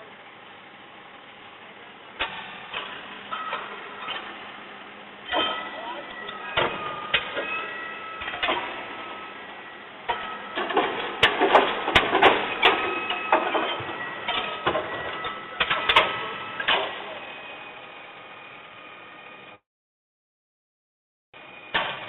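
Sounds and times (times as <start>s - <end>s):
garbage truck whine: 0.0s - 19.6s, 21.4s - 22.0s
metal clanks and knocks: 5.3s - 9.2s, 10.1s - 17.1s.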